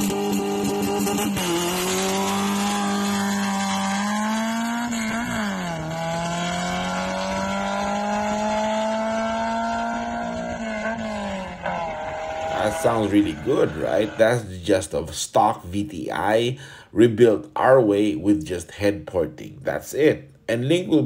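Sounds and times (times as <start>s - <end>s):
car engine revving hard: 0.0s - 14.5s.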